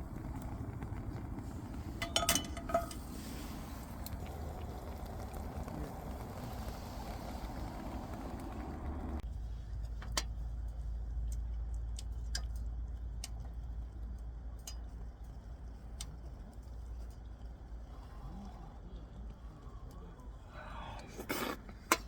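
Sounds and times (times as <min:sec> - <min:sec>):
steady cooking hiss: 0:00.0 - 0:09.2
wood fire crackling: 0:00.0 - 0:22.0.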